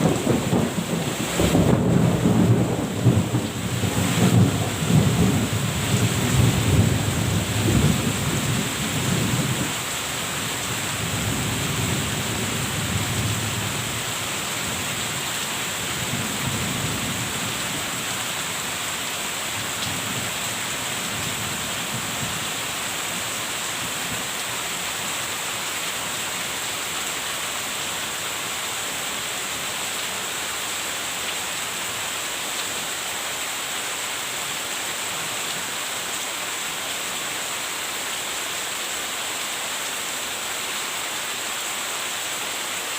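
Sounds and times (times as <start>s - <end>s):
thunder rumbles: 0.0s - 9.8s
steady rain: 0.0s - 42.9s.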